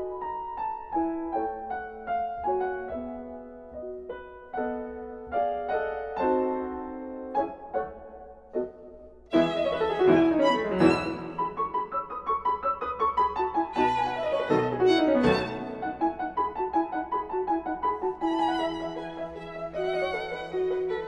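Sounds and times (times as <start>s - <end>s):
violin playing quick runs: 9.3s - 11.8s, 13.8s - 16.2s, 18.2s - 21.0s.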